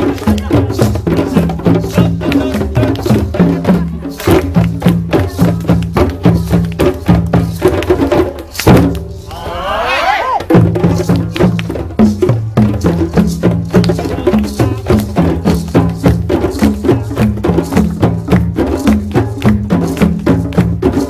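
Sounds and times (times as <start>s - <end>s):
hand drums playing fast rhythm: 0.0s - 9.2s, 10.4s - 21.0s
person whooping: 9.2s - 10.5s.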